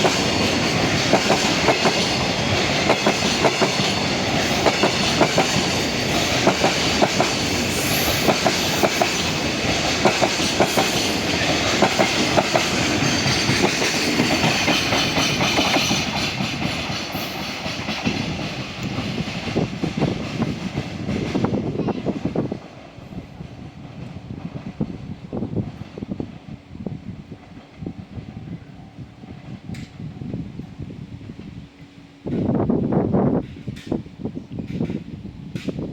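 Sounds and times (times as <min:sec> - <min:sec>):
train wheels clickety-clack: 0:00.0 - 0:26.6, 0:29.3 - 0:35.9
freight train rumble: 0:00.0 - 0:35.9.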